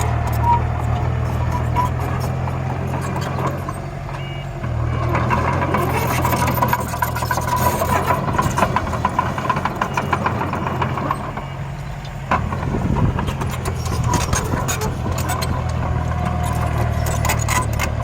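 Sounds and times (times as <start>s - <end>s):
rattle of clicks: 6.1s - 18.0s.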